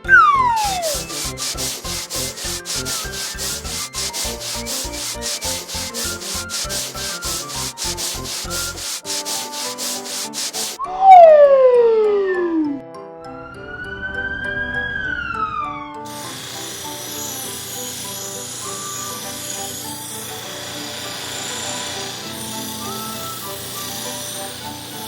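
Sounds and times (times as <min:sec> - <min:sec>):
falling whistle-like glide: 0:00.0 - 0:08.8, 0:10.8 - 0:16.1
light background music: 0:00.0 - 0:25.0
cartoon rubbing strokes: 0:00.4 - 0:10.8.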